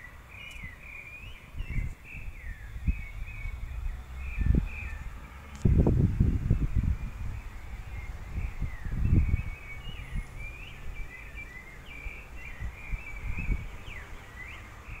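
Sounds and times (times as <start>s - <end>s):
songbird singing: 0.0s - 15.0s
low rumbles: 1.6s - 10.7s.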